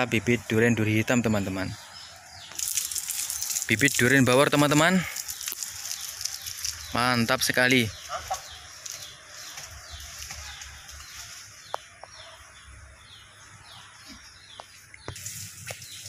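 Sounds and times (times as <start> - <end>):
bird calling: 4.6 - 16.0.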